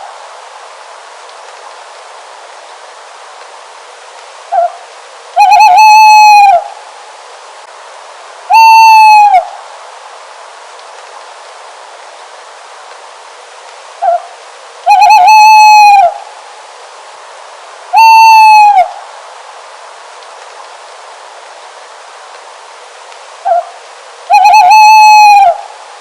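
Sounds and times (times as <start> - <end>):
steady hiss: 0.0 - 26.0
owl hooting: 4.5 - 4.8, 5.4 - 6.8, 8.5 - 9.6, 14.0 - 16.2, 17.9 - 19.0, 23.4 - 25.8.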